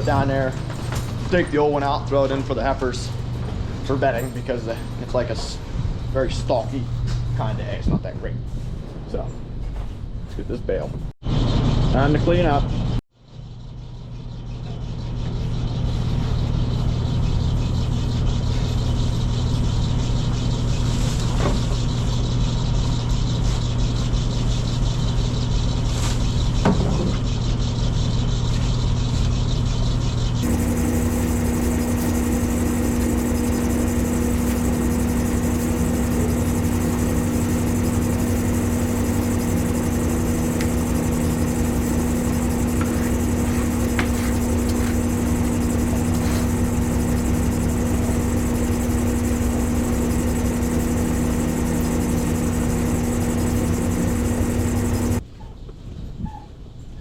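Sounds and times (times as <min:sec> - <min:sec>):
farm machine engine running: 0:28.3 - 0:55.2.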